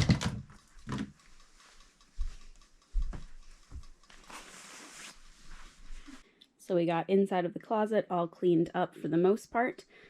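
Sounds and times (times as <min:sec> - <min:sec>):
objects knocking and thumping: 0:00.0 - 0:01.1.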